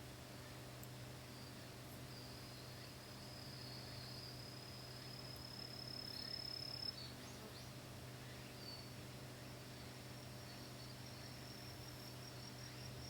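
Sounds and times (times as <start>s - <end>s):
short insect chirps: 1.4s - 7.2s
insect high-pitched trill: 2.1s - 7.2s, 10.2s - 13.0s.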